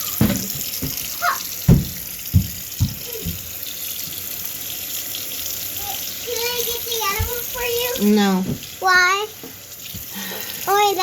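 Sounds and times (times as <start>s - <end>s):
tap water running into sink: 0.0s - 11.0s
dull knocks and bumps: 0.2s - 1.1s, 1.7s - 3.5s.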